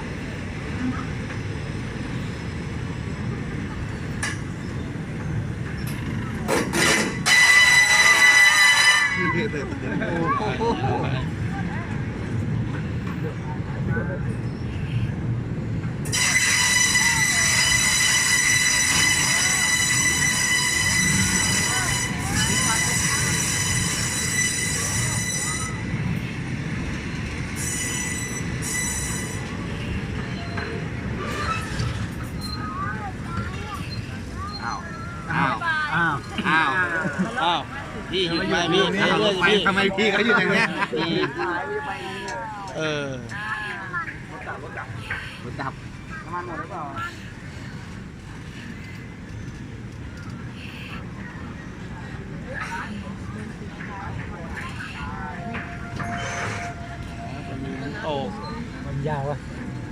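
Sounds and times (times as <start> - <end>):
train rumbling: 0.0 - 59.9
train horn blast: 6.8 - 9.6, 16.1 - 26.0, 54.9 - 58.0.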